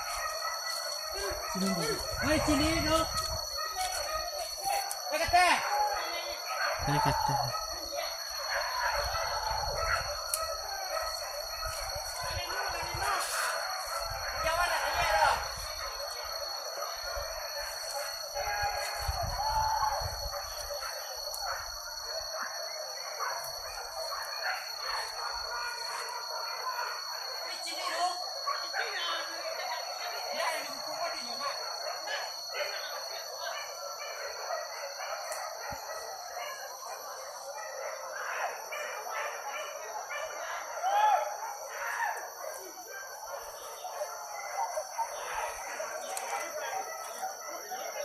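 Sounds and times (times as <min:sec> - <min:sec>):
animal calls: 0:00.0 - 0:27.0
steady high-pitched whine: 0:00.0 - 0:38.6
hunting dogs yelping and baying: 0:00.0 - 0:48.0.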